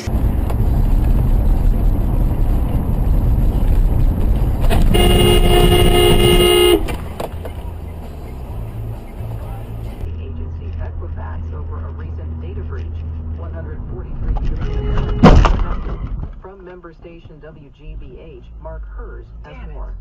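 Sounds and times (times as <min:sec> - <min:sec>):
engine and road noise: 0:00.0 - 0:20.0
car horn: 0:04.7 - 0:07.1, 0:14.6 - 0:15.4.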